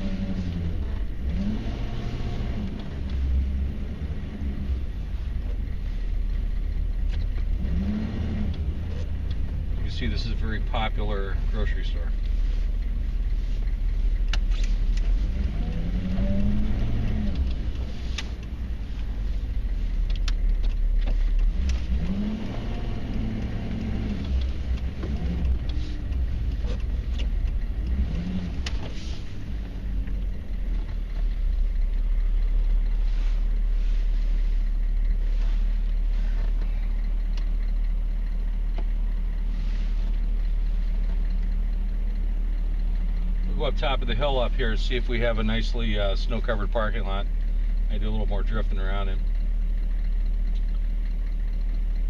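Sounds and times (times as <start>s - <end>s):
diesel truck engine drone: 0.0s - 52.0s.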